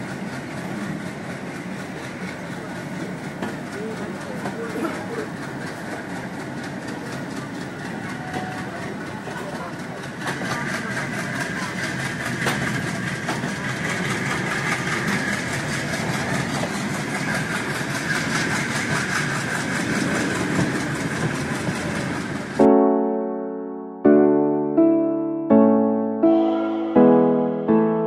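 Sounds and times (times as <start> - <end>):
train wheels rumbling on track: 0.0 - 22.7
piano music: 22.6 - 28.0.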